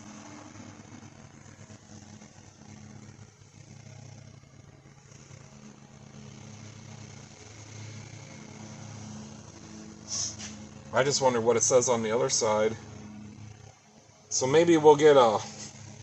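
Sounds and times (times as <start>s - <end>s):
low machine hum: 0.0s - 16.0s
even hiss: 10.0s - 12.8s, 14.3s - 15.8s.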